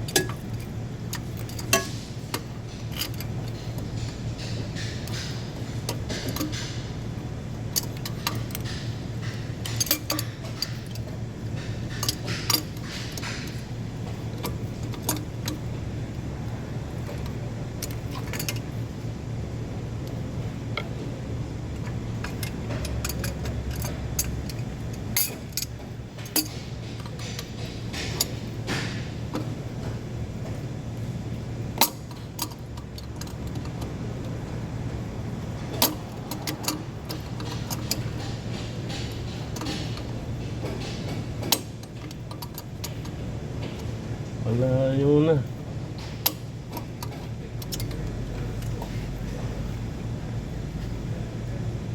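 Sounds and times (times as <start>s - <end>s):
metal tools clinking on engine parts: 0.0s - 6.9s, 7.7s - 15.8s, 21.8s - 29.5s, 35.6s - 43.9s, 46.0s - 49.3s
steady low hum: 0.0s - 51.9s.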